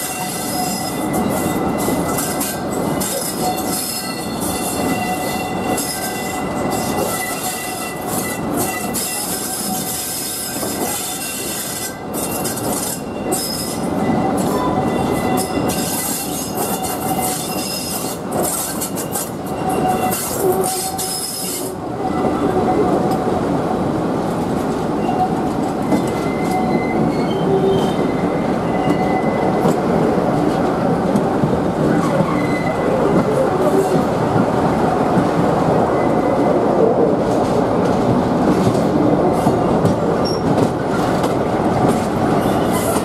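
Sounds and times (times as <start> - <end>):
wheels squealing against rails: 0.0 - 22.9, 25.0 - 29.8, 31.9 - 34.0, 40.2 - 41.2, 41.8 - 43.0
train rumbling: 0.0 - 43.0.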